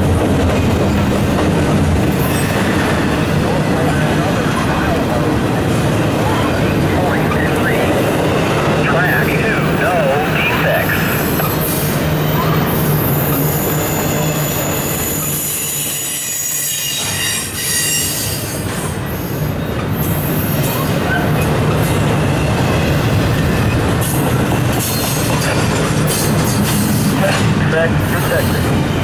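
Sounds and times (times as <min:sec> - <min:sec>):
freight train wheels on rails: 0:00.0 - 0:29.0
high wheel squeal: 0:11.1 - 0:21.4.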